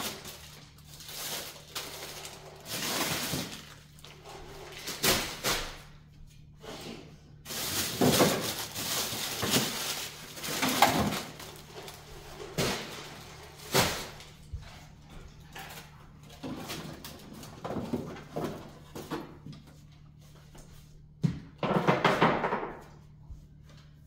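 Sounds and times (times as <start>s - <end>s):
packaging rustling: 0.0s - 5.4s, 7.5s - 14.2s
frozen food packages knocking: 7.5s - 11.8s, 21.2s - 22.9s.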